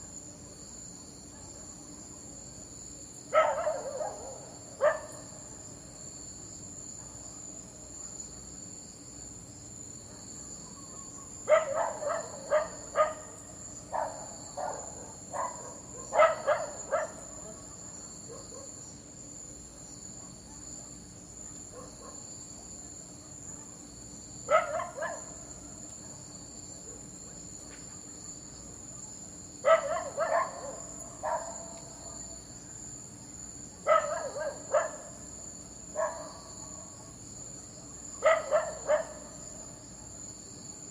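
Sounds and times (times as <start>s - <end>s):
high-pitched background hiss: 0.0s - 40.9s
dog barking: 1.3s - 1.8s, 3.3s - 5.3s, 7.0s - 7.3s, 10.0s - 18.8s, 20.1s - 22.3s, 24.5s - 25.4s, 29.6s - 32.4s, 33.8s - 35.2s, 35.9s - 37.2s, 38.2s - 39.4s.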